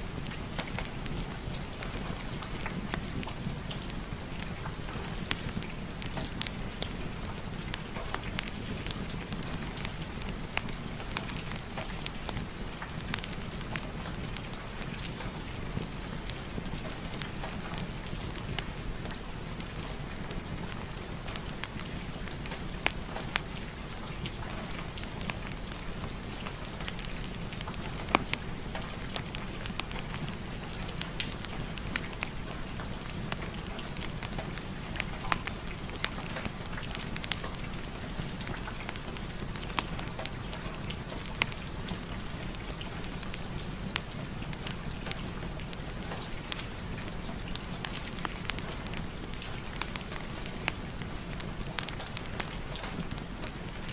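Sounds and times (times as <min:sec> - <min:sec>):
steady rain: 0:00.0 - 0:53.9
wood fire crackling: 0:00.0 - 0:53.9.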